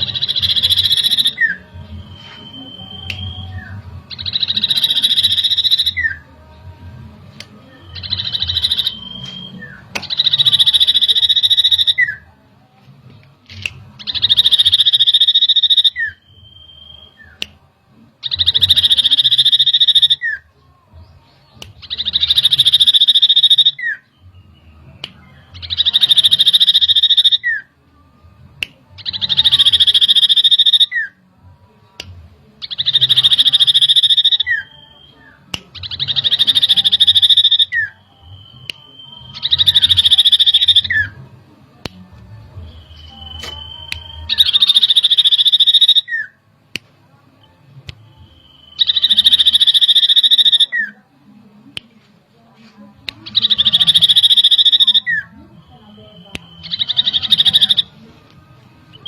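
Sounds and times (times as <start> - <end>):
bird buzzy high trill: 0.0 - 6.2, 42.8 - 46.3.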